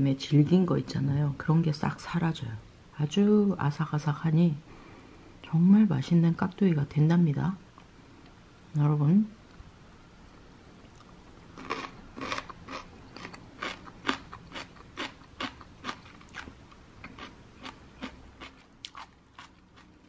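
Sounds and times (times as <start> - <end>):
crunchy chewing of celery: 10.8 - 20.0.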